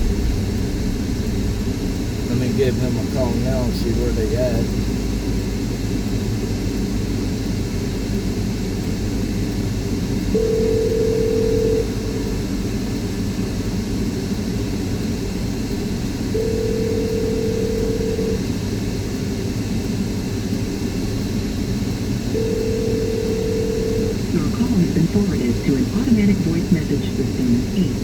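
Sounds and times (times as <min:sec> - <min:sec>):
car road and engine rumble: 0:00.0 - 0:28.0
telephone ringback tone: 0:10.4 - 0:12.3, 0:16.4 - 0:18.4, 0:22.4 - 0:24.2.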